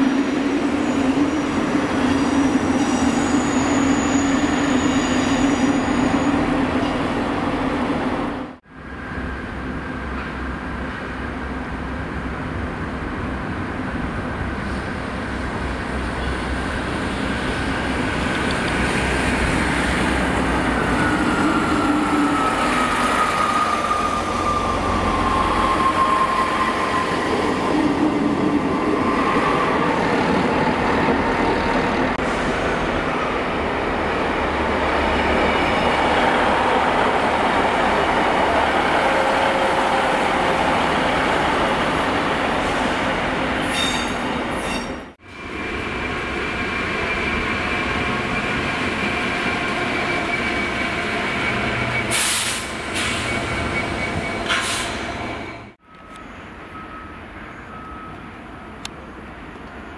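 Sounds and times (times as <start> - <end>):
passing train whine: 0.0 - 59.9
train wheels on rails: 12.3 - 58.6.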